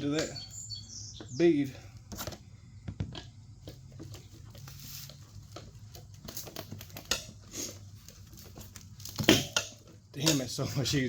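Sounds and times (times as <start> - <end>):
tire spoons scraping rim: 3.2 - 11.0.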